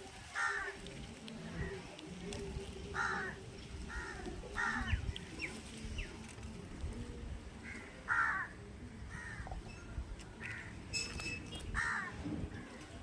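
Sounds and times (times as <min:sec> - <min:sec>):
crow cawing: 0:00.4 - 0:00.8, 0:03.0 - 0:05.0, 0:07.6 - 0:08.5, 0:09.1 - 0:09.5, 0:11.8 - 0:12.2.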